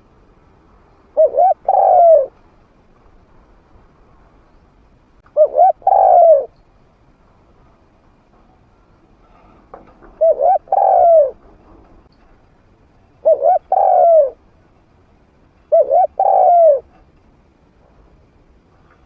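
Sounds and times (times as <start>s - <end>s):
dove cooing: 1.2s - 2.3s, 5.3s - 6.5s, 10.1s - 11.4s, 13.2s - 14.4s, 15.7s - 16.9s.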